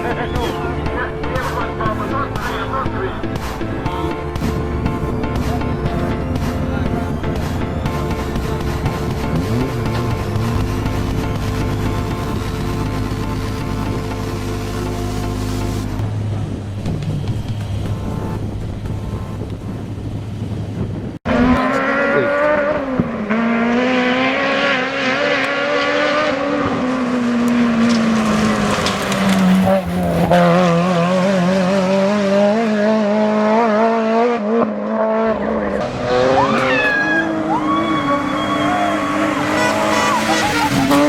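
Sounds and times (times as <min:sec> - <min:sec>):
rally car engine revving: 0:00.0 - 0:41.0
tyre squeal: 0:36.2 - 0:41.0.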